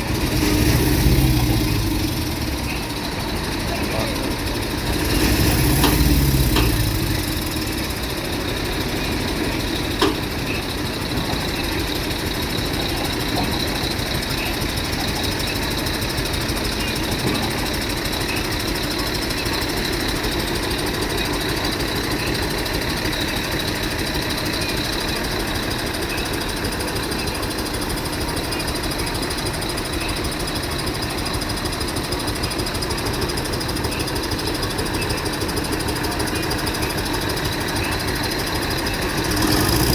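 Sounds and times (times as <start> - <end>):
heavy machinery engine whining: 0.0 - 39.9.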